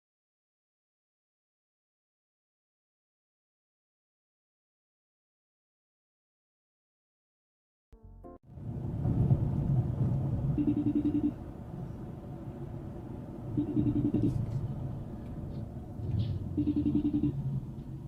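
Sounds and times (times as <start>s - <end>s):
car rumbling on the move: 8.0s - 18.0s
pulsing electronic tone: 10.6s - 11.4s, 13.6s - 14.4s, 16.5s - 17.4s.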